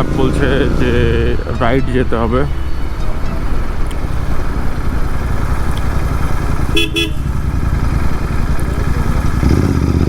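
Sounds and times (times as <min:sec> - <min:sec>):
motorcycle engine running: 0:00.0 - 0:10.0
vehicle horn toots: 0:06.4 - 0:08.0.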